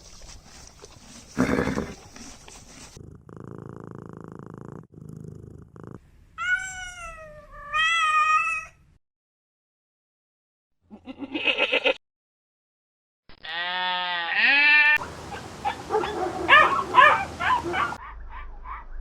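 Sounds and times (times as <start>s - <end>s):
cat purring: 1.4s - 6.0s
cat meowing: 6.4s - 8.8s.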